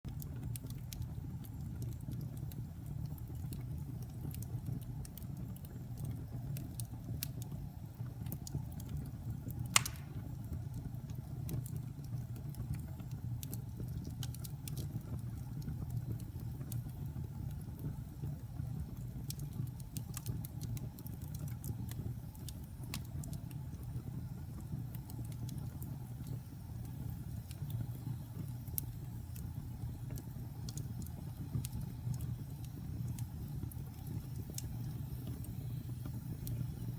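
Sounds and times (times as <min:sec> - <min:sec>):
fire crackling: 0:00.1 - 0:36.9
flames rumbling: 0:00.1 - 0:36.9
loud fire pop: 0:09.7 - 0:10.4.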